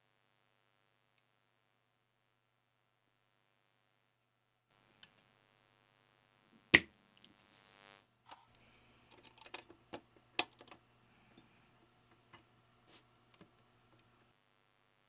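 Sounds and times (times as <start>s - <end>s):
small plastic clicks and clacks: 8.4s - 11.4s.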